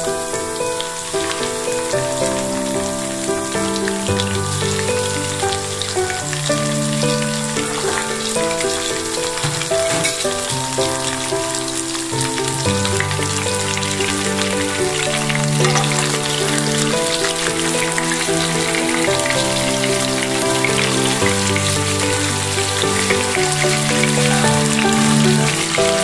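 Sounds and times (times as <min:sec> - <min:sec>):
chicken sizzling in oil: 0:00.0 - 0:26.0
slow background music: 0:00.0 - 0:26.0.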